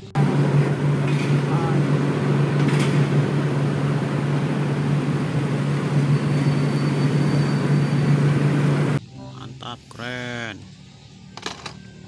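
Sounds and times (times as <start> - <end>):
car engines droning: 0.0 - 9.0
faint high whine: 0.0 - 9.0.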